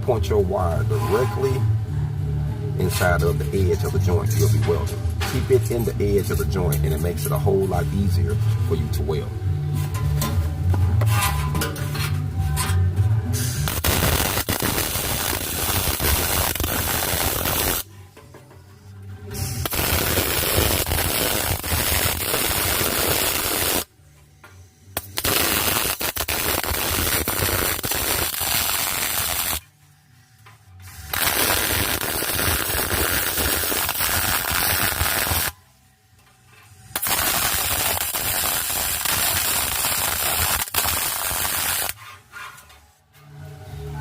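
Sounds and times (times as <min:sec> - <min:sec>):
welding arc crackling: 0:13.4 - 0:17.9, 0:19.6 - 0:23.9, 0:25.0 - 0:29.6, 0:31.0 - 0:35.6, 0:36.9 - 0:42.0.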